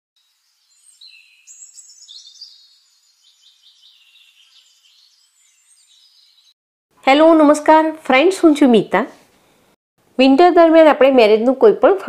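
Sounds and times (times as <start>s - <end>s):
birds chirping and twittering: 0.2s - 6.6s.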